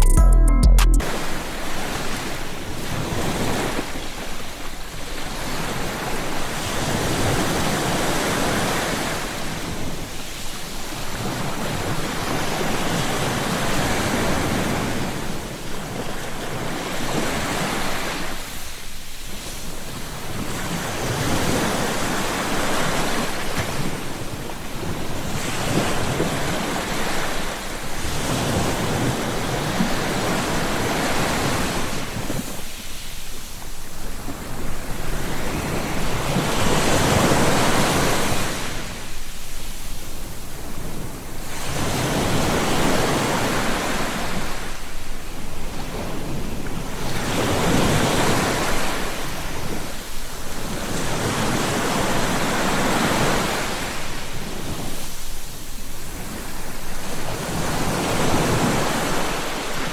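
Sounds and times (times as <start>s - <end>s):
ocean waves breaking: 1.0s - 59.9s.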